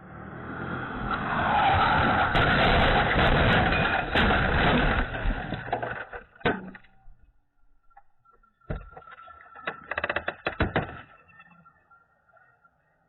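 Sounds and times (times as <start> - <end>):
road vehicle passing: 0.0 - 3.7.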